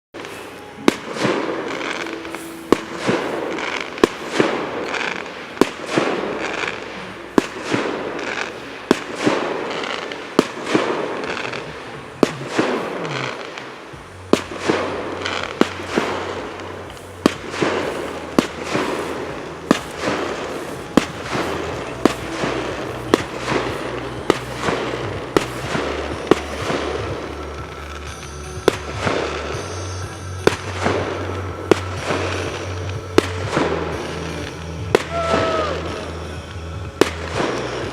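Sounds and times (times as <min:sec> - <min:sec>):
fireworks crackling: 0:00.1 - 0:37.9
fireworks bangs: 0:00.2 - 0:37.9.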